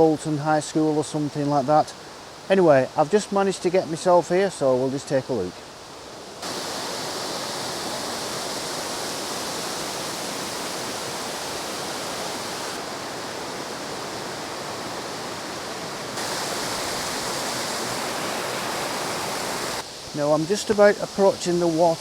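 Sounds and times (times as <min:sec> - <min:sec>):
river rushing: 0:00.0 - 0:22.0.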